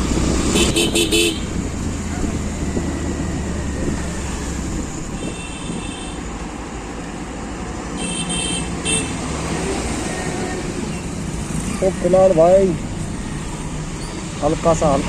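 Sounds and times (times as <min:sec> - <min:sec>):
road traffic noise: 0:00.0 - 0:15.0
vehicle horn beeping: 0:00.5 - 0:01.5, 0:05.1 - 0:06.2, 0:08.0 - 0:09.2.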